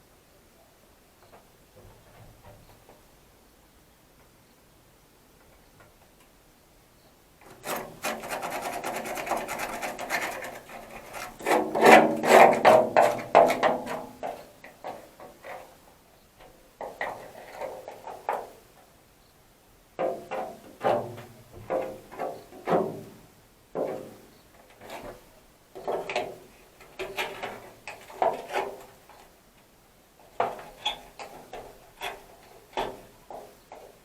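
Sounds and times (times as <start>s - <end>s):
rough scraping and rubbing: 7.5s - 14.0s.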